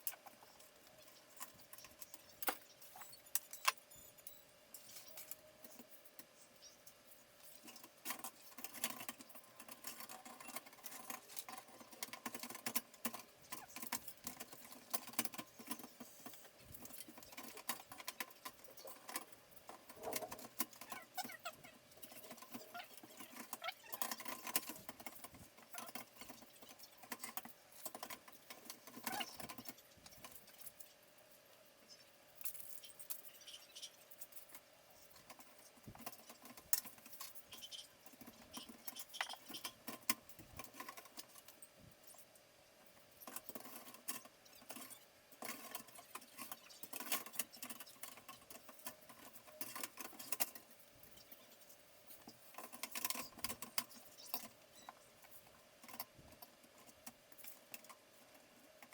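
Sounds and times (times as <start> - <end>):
small hard parts clicking: 0.0 - 31.0, 32.3 - 58.9.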